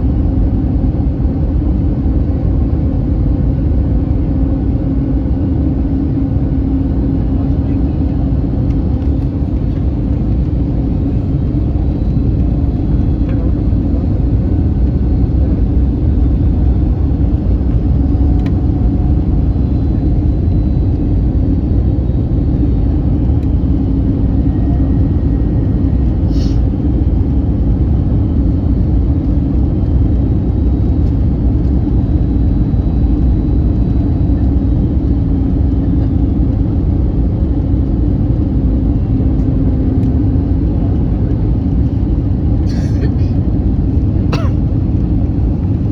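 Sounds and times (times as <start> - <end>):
airplane cabin rumble: 0.0 - 45.9
constant hum: 0.0 - 45.9.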